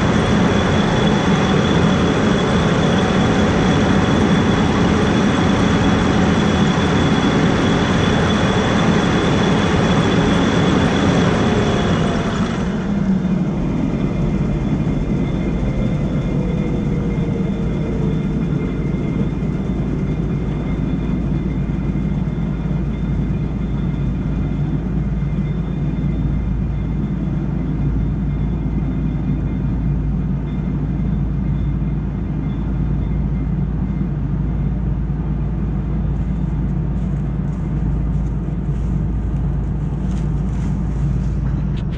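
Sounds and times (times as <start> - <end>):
falling tone of machine winding down: 0.0 - 24.6
high-pitched machinery noise: 0.0 - 41.9
steady low engine: 0.0 - 41.9.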